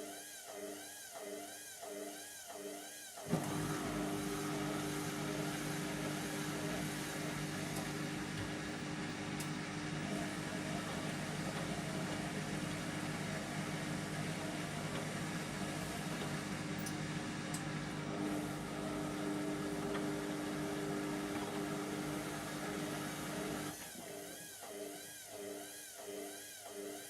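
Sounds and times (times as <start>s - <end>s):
washing machine drum spinning: 3.3s - 23.7s.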